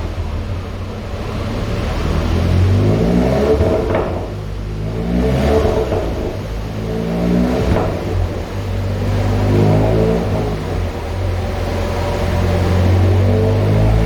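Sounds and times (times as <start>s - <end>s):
car engine revving: 0.0s - 14.0s
exhaust cracks and pops: 2.8s - 9.3s.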